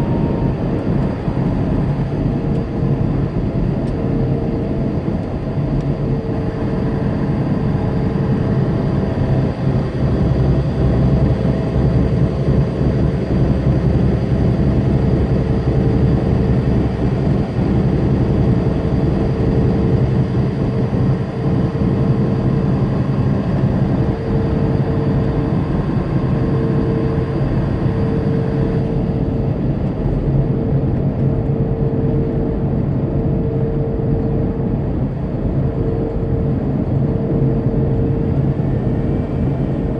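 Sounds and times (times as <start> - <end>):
road and tyre noise: 0.0 - 31.2
diesel engine drone: 0.0 - 39.9.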